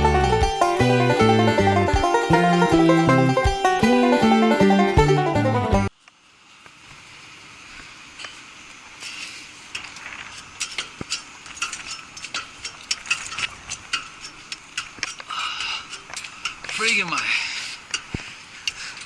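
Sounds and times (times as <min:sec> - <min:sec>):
faint steady hiss: 0:05.4 - 0:19.0.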